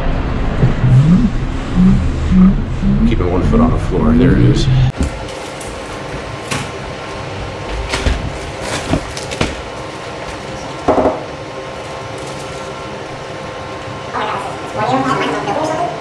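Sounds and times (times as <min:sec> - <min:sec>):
grocery bags knocking and clattering: 0:07.8 - 0:09.8.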